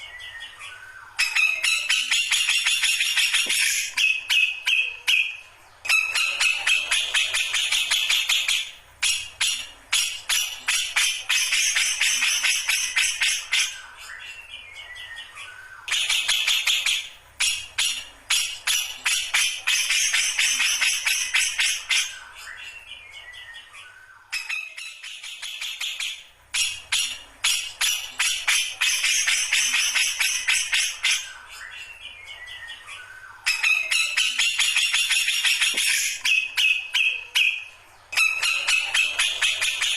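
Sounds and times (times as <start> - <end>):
bird harsh chattering song: 0.0 - 39.9.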